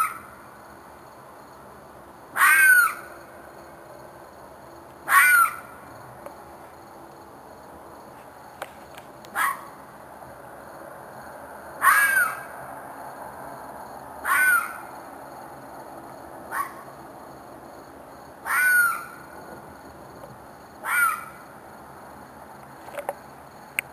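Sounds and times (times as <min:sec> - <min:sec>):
animal screaming: 0:02.4 - 0:03.1, 0:05.1 - 0:05.6, 0:11.8 - 0:12.5, 0:14.2 - 0:14.8, 0:18.4 - 0:19.2, 0:20.8 - 0:21.4.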